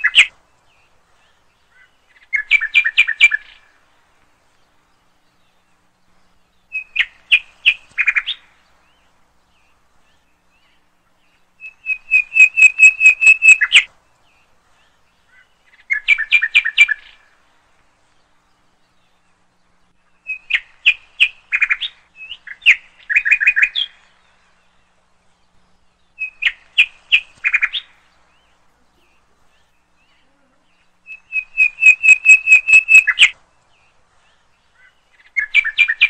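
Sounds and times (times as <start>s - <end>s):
small bird chirping: 4.7s - 17.2s, 25.5s - 36.0s.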